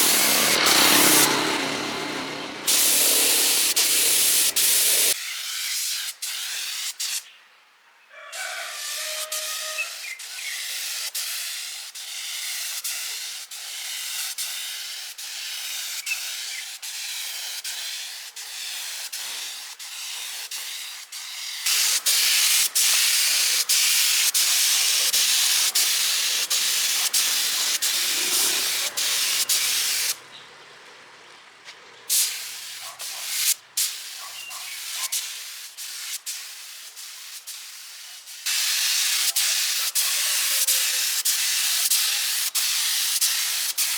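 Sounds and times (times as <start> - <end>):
pressurised jet hissing: 0.0 - 5.2, 18.0 - 30.2, 32.1 - 34.2.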